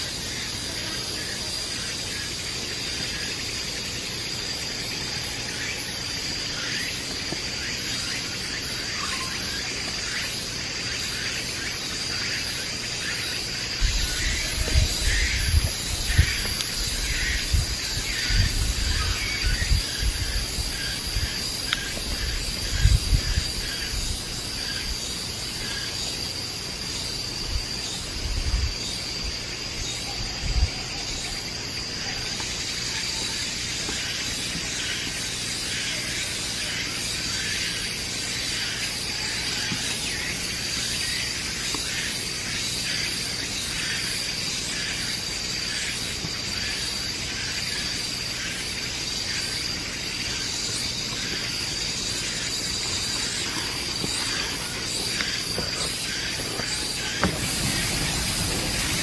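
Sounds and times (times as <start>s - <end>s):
insects droning: 0.0s - 59.0s
faint hiss: 52.1s - 59.0s.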